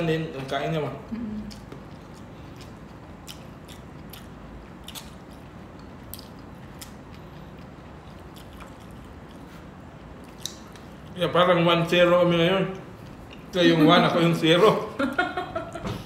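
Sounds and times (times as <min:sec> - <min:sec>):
people chewing food: 0:00.4 - 0:11.3, 0:12.6 - 0:13.7
mouth clicks and smacks: 0:10.2 - 0:11.1.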